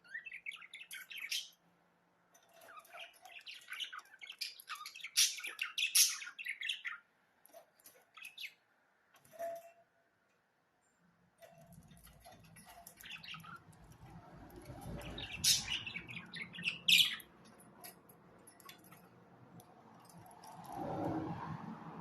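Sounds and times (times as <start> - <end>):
budgerigars chirping: 14.9 - 17.3.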